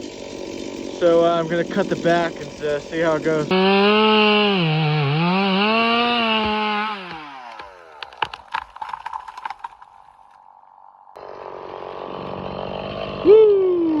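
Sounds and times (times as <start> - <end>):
chainsaw running down: 0.0 - 10.0, 11.2 - 13.4
wood cracking and snapping: 5.9 - 10.6.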